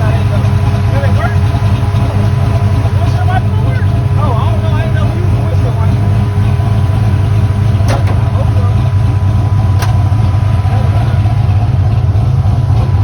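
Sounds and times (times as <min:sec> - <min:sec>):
engine deep drone: 0:00.0 - 0:13.0.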